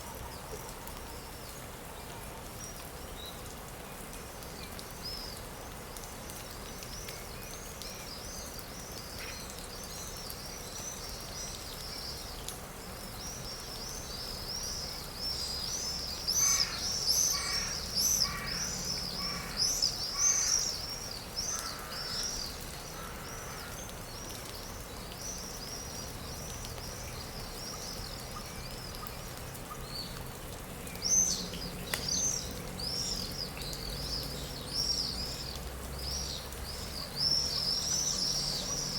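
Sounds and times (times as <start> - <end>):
small birds chirping: 2.6 - 30.2, 30.8 - 38.9.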